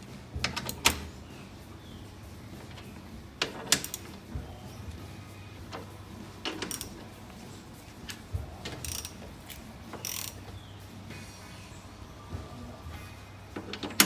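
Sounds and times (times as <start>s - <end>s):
ratchet wrench clicking: 0.0s - 11.1s.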